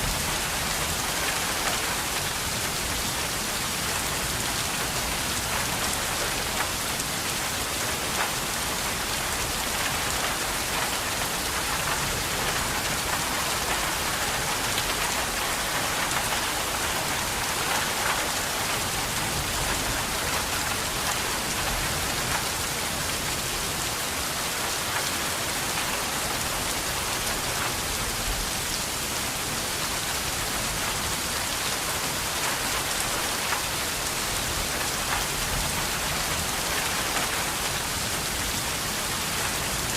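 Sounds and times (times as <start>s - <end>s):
steady rain on a surface: 0.0s - 39.9s.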